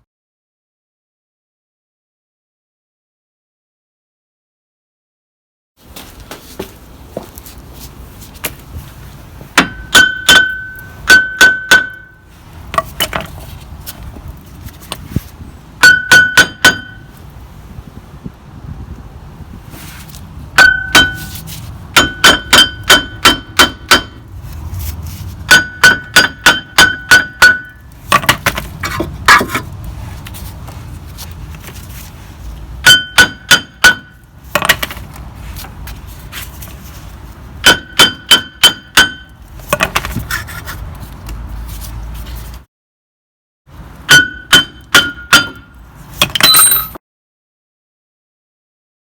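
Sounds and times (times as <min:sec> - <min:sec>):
hammer striking metal: 0:09.6 - 0:12.2, 0:15.8 - 0:17.1, 0:20.6 - 0:24.3, 0:25.5 - 0:28.4, 0:32.8 - 0:34.9, 0:37.6 - 0:39.4, 0:44.1 - 0:47.0.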